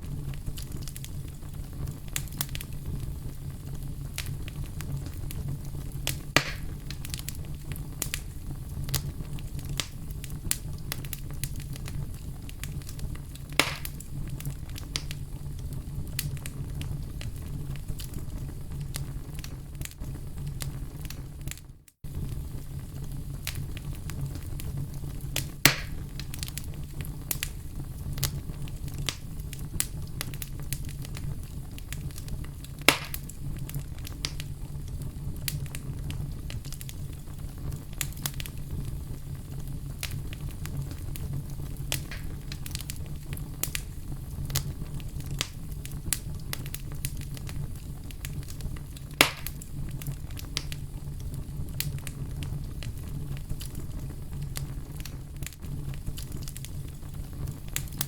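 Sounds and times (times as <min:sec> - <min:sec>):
loud fire pops: 0:00.0 - 0:58.0
wood fire crackling: 0:00.0 - 0:58.0.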